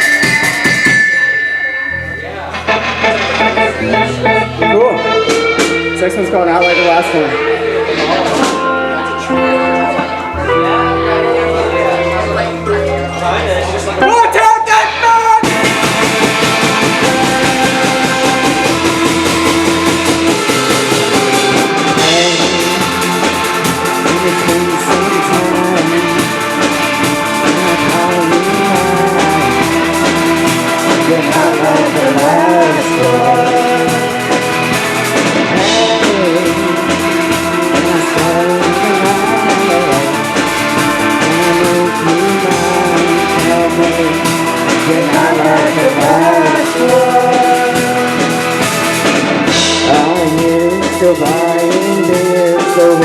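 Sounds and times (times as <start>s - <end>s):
rock band playing: 0.0s - 53.0s.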